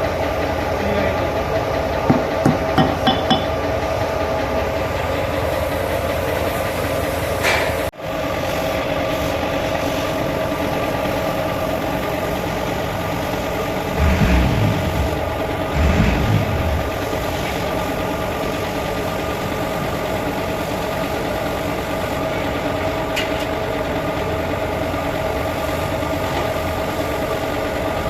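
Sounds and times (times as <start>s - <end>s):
engine idling: 0.0s - 28.0s
low thumps: 13.8s - 17.3s.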